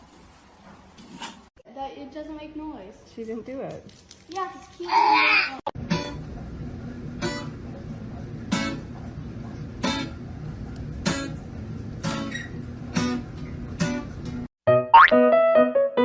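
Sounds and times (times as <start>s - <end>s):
strummed guitar chords: 5.8s - 6.4s, 7.2s - 15.8s
steady low hum: 5.8s - 14.5s.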